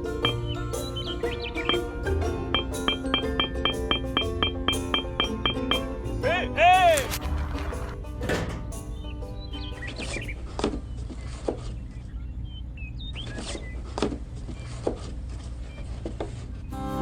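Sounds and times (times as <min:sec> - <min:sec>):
low mechanical hum: 0:07.1 - 0:17.0.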